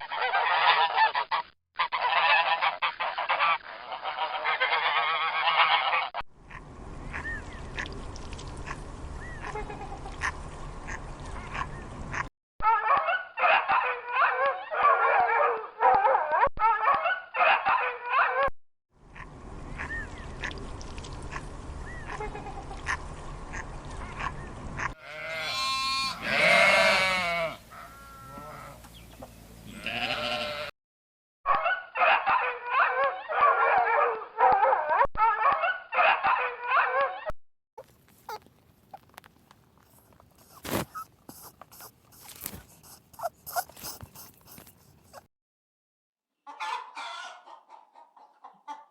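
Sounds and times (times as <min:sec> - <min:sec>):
farm animals calling: 0:00.0 - 0:08.0, 0:19.2 - 0:20.6, 0:21.3 - 0:30.7, 0:39.9 - 0:45.3.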